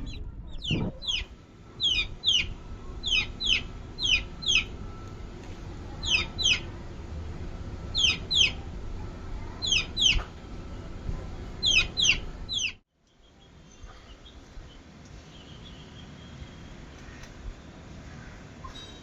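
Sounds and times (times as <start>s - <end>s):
chicks peeping: 0.0s - 4.8s, 6.0s - 6.7s, 7.9s - 8.6s, 9.6s - 10.3s, 11.6s - 12.8s.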